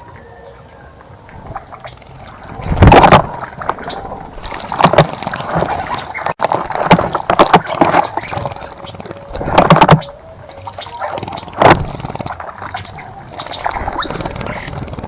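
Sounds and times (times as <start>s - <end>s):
bird splashing in bird bath: 1.4s - 9.5s.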